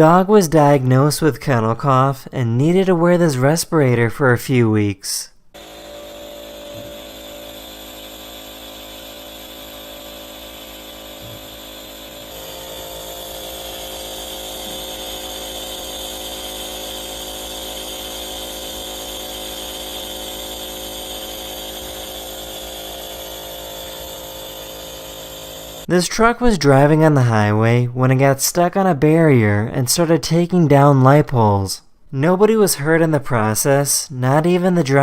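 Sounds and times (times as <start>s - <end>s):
respirator motor humming: 5.6s - 25.9s.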